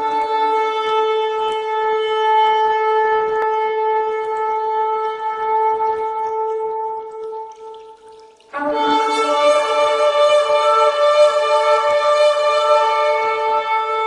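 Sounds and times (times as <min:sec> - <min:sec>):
shofar blast: 0:08.6 - 0:14.0.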